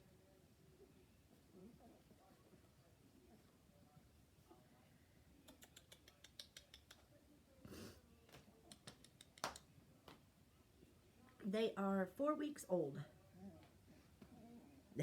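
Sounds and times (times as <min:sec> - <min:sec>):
faint small clicks: 0:05.4 - 0:07.1.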